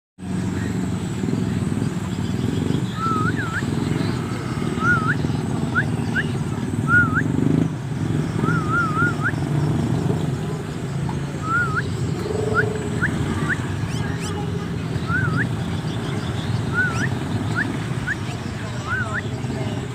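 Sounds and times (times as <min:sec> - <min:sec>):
low engine-like rumble: 0:00.2 - 0:19.9
short clear whistles: 0:02.9 - 0:03.8, 0:04.8 - 0:07.3, 0:08.4 - 0:09.4, 0:11.4 - 0:14.4, 0:16.7 - 0:19.2.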